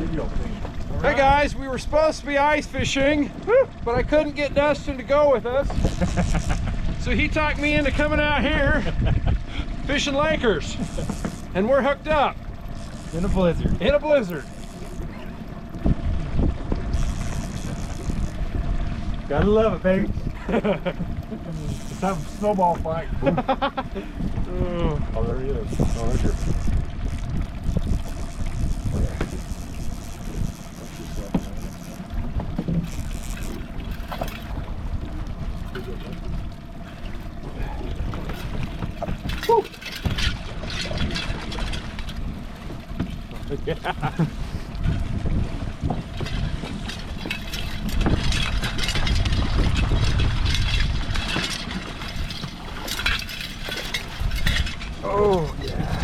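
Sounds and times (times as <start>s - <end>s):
boat motor humming: 0.0s - 56.0s
wind buffeting microphone: 0.0s - 56.0s.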